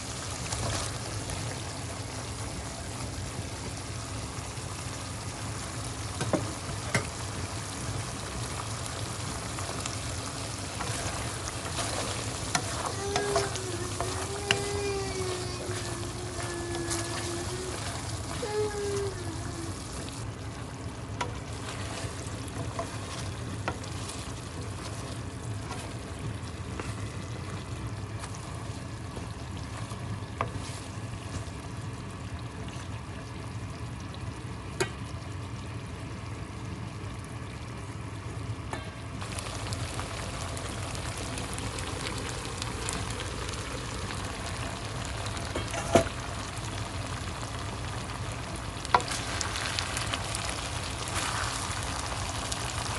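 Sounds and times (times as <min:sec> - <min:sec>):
food sizzling in a frying pan: 0:00.0 - 0:33.7, 0:38.5 - 0:52.9.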